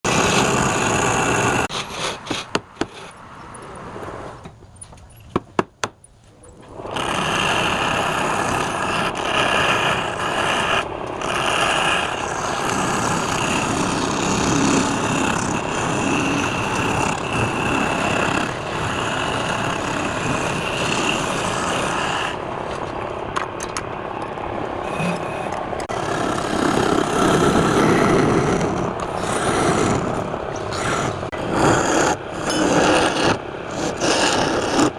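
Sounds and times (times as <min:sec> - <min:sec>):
wood lathe cutting wood: 0:00.0 - 0:02.2, 0:06.8 - 0:22.4, 0:24.9 - 0:34.9.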